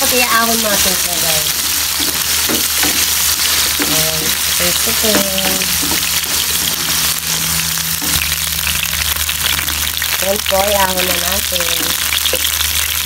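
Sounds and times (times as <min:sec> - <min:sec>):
carrots sizzling in hot oil: 0:00.0 - 0:13.0
spatula stirring in wok: 0:01.5 - 0:10.2.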